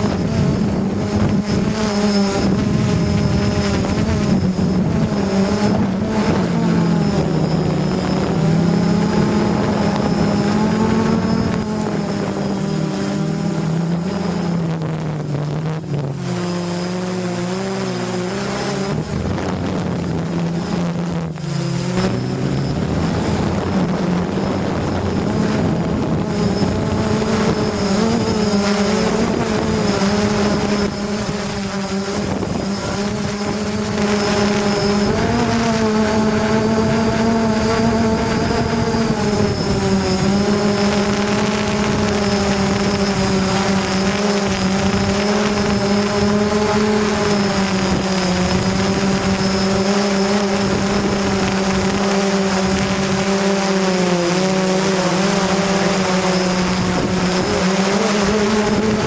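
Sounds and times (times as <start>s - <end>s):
quadcopter propellers buzzing: 0.0s - 59.0s.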